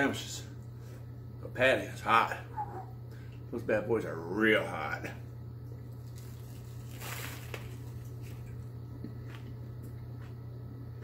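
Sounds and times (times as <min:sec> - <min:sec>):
crunchy bite: 0:06.0 - 0:09.2.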